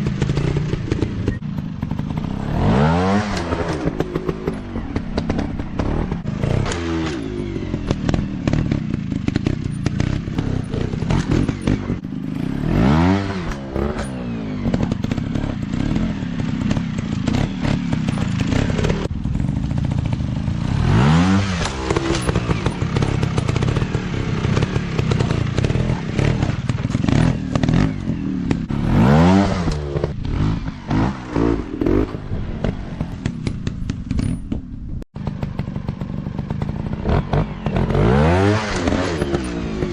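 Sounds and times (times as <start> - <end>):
dirt bike engine revving: 0.0 - 34.5, 35.2 - 39.9
knocks and clatter: 21.5 - 28.8, 29.6 - 38.1.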